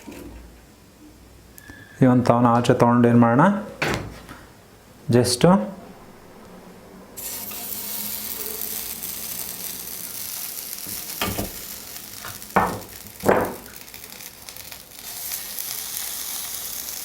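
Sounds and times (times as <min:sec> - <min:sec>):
skewers sizzling on plate: 0:07.1 - 0:17.0
food sizzling on hot plate: 0:07.2 - 0:17.0.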